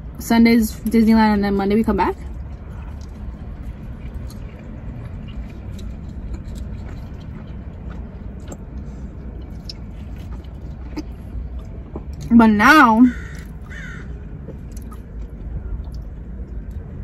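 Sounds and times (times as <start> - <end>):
low rumble in car cabin: 0.0 - 17.0
person chewing with mouth clicks: 2.2 - 12.3, 14.4 - 17.0.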